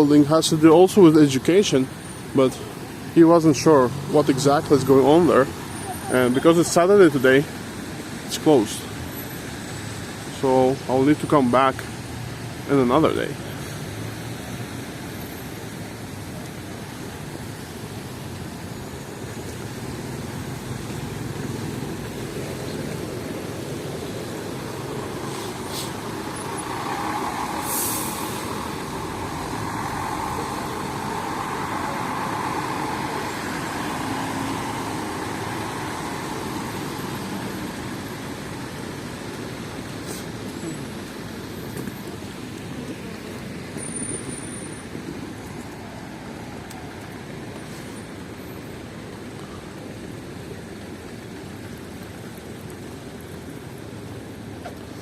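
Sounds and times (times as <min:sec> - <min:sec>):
traffic on wet road: 0:00.0 - 0:55.0
heavy vehicle passing: 0:19.6 - 0:41.0
short hiss: 0:25.3 - 0:26.0, 0:40.0 - 0:40.3.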